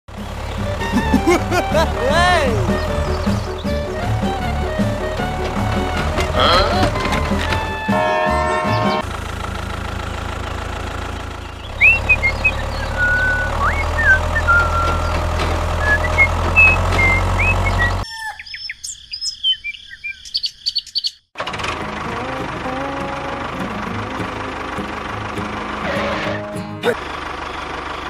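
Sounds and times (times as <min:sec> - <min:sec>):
birds chirping and whistling: 0:02.5 - 0:04.4, 0:11.4 - 0:21.3.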